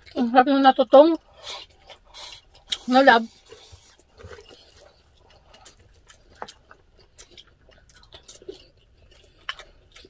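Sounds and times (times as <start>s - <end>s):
chewing food: 0.0s - 10.0s.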